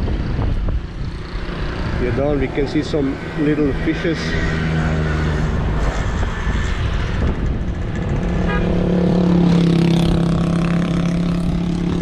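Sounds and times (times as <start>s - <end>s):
motorbike engine running: 6.7s - 12.0s.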